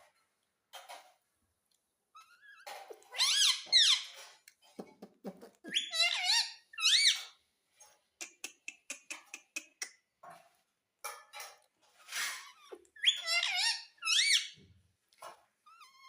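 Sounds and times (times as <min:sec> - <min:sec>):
parakeet squawks: 0:05.7 - 0:07.3, 0:12.3 - 0:14.6.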